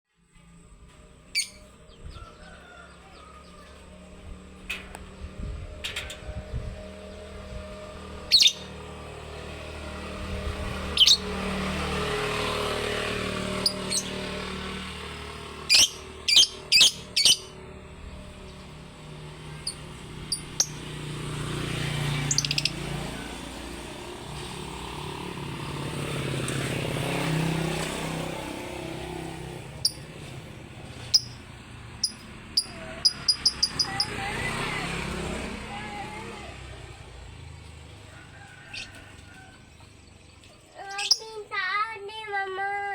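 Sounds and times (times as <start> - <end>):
lovebird sharp chirps: 1.4 - 1.6, 8.3 - 8.7, 11.0 - 11.3, 15.7 - 17.5, 22.3 - 22.8, 31.1 - 31.4, 32.0 - 34.0
low rumble: 4.1 - 8.4.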